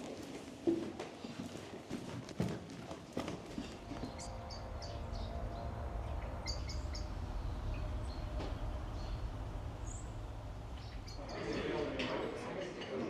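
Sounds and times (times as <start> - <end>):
steady low rumble: 3.4 - 12.8.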